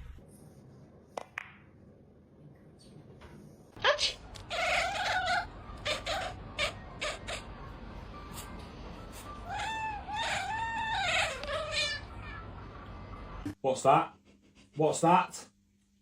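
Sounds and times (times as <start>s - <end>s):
cat meowing: 4.5s - 7.5s, 9.4s - 12.5s.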